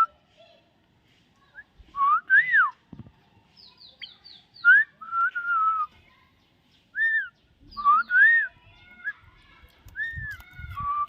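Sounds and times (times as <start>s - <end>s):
myna whistling: 4.0s - 5.9s, 7.0s - 9.2s.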